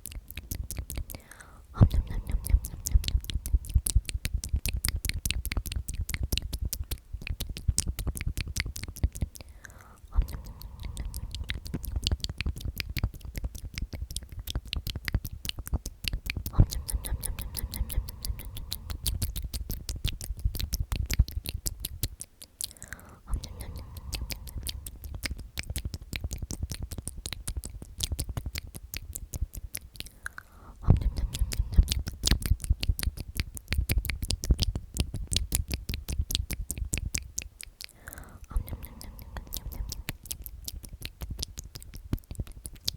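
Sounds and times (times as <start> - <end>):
wet lip and tongue clicks: 0.0 - 42.9
person whispering: 0.9 - 4.0, 9.3 - 12.5, 16.4 - 20.1, 22.6 - 25.4, 30.1 - 32.2, 37.9 - 40.3.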